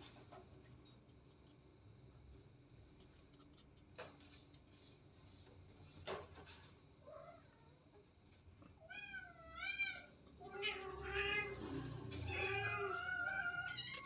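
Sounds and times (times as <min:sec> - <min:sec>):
cat meowing: 0:08.8 - 0:14.0.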